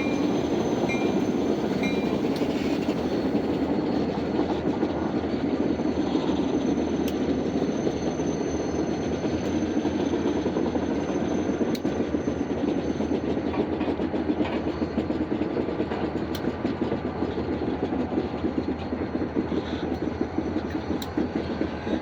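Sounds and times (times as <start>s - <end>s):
freight train rolling: 0.0s - 22.0s.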